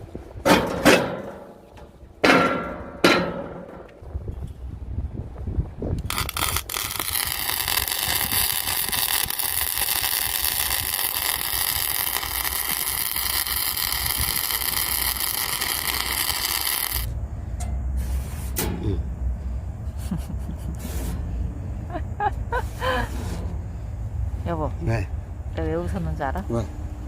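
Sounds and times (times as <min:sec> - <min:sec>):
low rumble: 0:03.0 - 0:27.0
power tool motor whining: 0:06.0 - 0:17.1.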